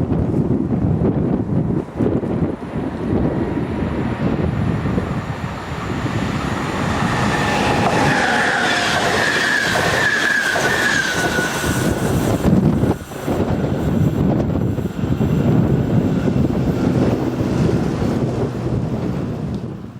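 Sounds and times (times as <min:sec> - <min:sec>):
train rumbling past: 0:00.0 - 0:19.9
high wheel squeal: 0:05.8 - 0:13.2.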